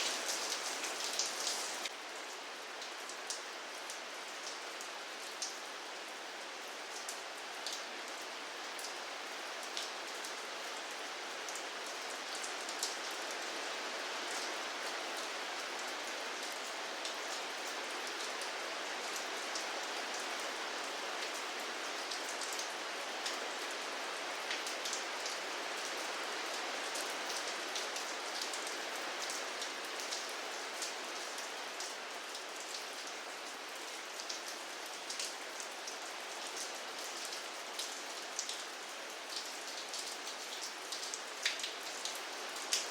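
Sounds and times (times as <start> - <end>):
rain hissing: 0.0 - 1.9
raindrops ticking on hard surface: 0.0 - 1.9.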